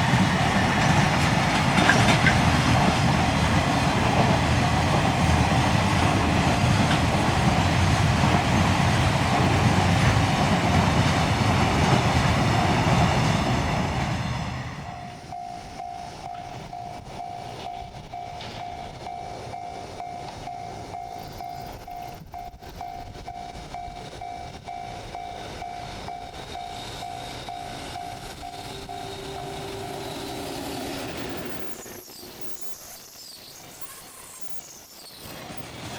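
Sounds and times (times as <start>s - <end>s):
freight train rumbling past: 0.0s - 32.8s, 33.6s - 35.9s
faint pulsing tone: 14.8s - 35.3s.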